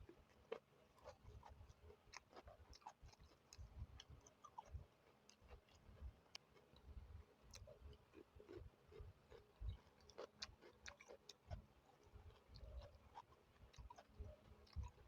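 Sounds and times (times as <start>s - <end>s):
close-up chewing: 0.0s - 15.0s.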